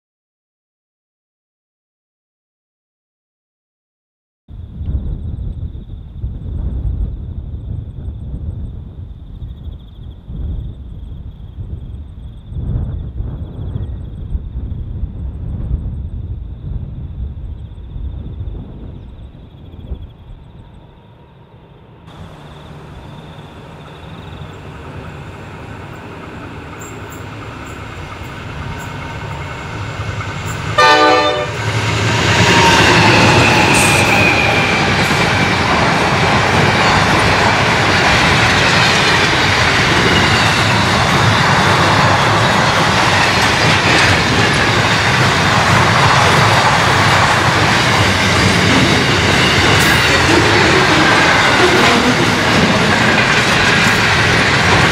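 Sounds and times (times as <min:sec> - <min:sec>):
freight train passing: 0:05.2 - 0:54.9
train horn blast: 0:30.4 - 0:35.0
wagons running on rails: 0:31.6 - 0:54.9.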